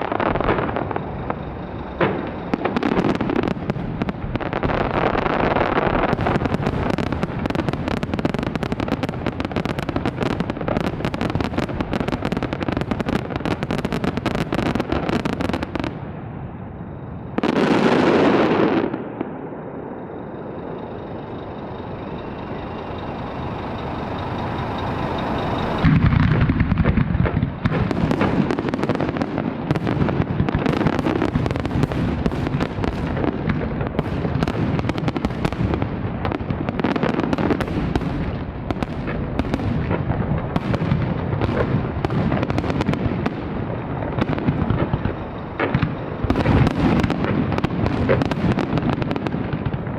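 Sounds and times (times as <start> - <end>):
fireworks bangs and crackling: 0.0 - 49.9
faint high whistle: 19.6 - 26.0.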